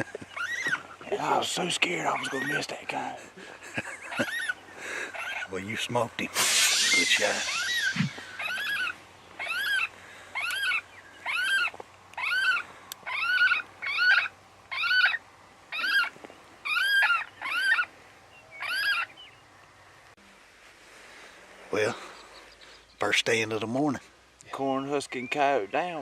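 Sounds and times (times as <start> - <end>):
electronic animal distress cry: 6.6 - 16.1, 16.7 - 17.9, 18.6 - 19.1.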